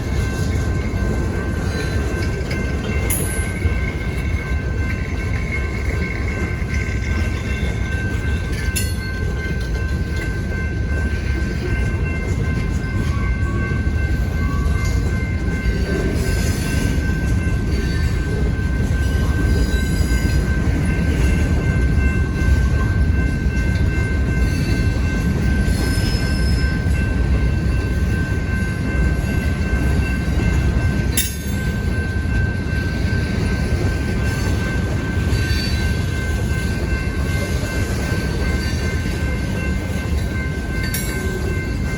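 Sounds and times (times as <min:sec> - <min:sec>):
freight train rumbling past: 0:00.0 - 0:41.9.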